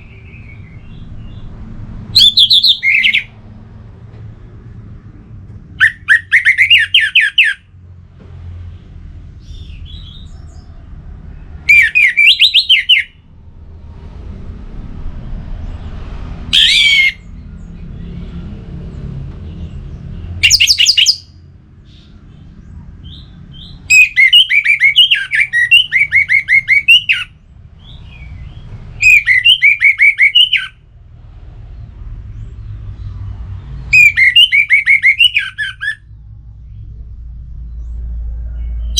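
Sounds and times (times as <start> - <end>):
low rumble: 0.0 - 5.8, 7.8 - 11.9, 13.1 - 20.5, 36.0 - 38.9
thrush singing: 2.1 - 3.4.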